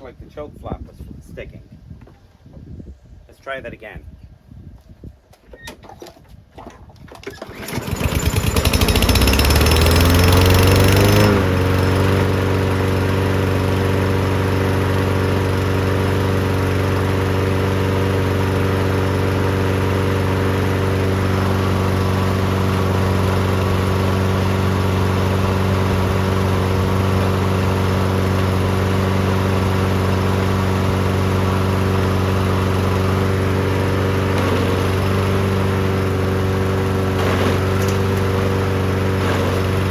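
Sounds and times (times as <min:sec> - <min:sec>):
lawn mower engine cranking: 0:05.5 - 0:39.9
lawn mower engine running: 0:07.2 - 0:39.9.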